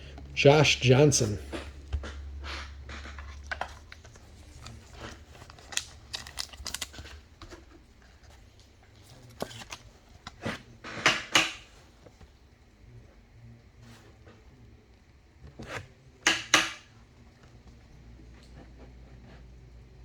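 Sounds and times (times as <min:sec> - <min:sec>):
trading cards being handled: 0:00.2 - 0:12.2.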